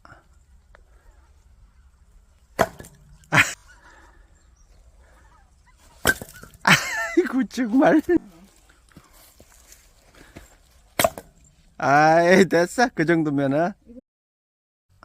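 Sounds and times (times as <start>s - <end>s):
axe chopping firewood: 2.5s - 3.2s, 5.9s - 6.7s, 10.9s - 11.5s.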